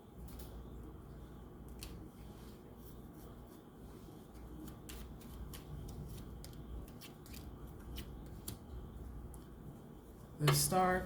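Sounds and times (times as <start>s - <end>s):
faint low hum: 0.0s - 11.0s
cards being shuffled: 4.2s - 8.6s.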